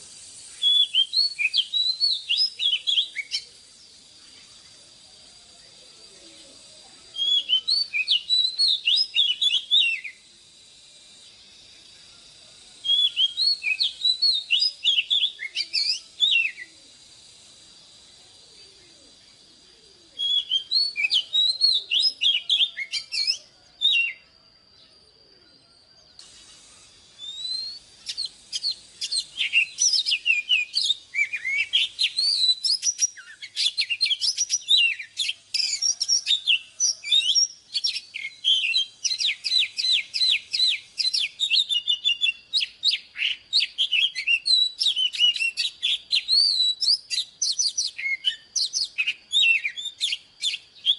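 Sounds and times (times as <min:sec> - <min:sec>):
magpie-robin singing: 0:00.5 - 0:03.5, 0:07.2 - 0:10.2, 0:27.2 - 0:50.9.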